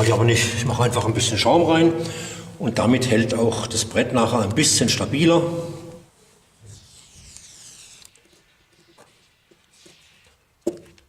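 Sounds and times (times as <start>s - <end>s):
foam gun hissing: 6.6s - 10.9s.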